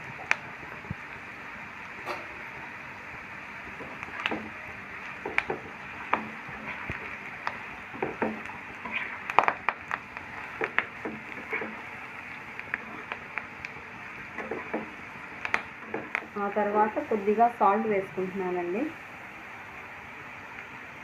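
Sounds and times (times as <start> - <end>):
potatoes sizzling in oil: 0.0 - 21.0
spatula scraping a pan: 3.8 - 9.6, 10.3 - 11.9, 12.7 - 13.3, 14.3 - 15.0.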